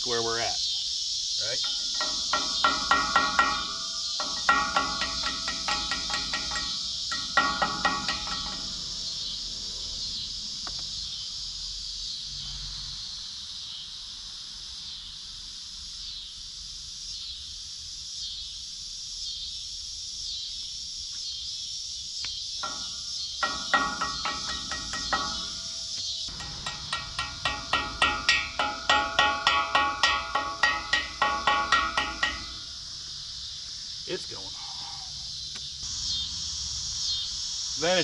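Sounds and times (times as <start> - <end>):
pulsing insect chorus: 0.0 - 38.0
hammer striking steel: 1.6 - 9.3, 22.6 - 32.8.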